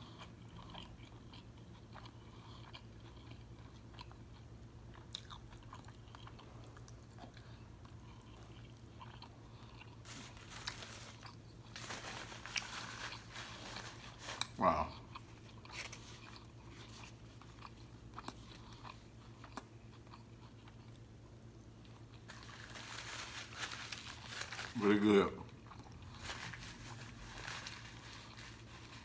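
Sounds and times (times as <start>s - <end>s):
wet chewing mouth sounds: 0.0s - 10.0s, 14.4s - 21.0s.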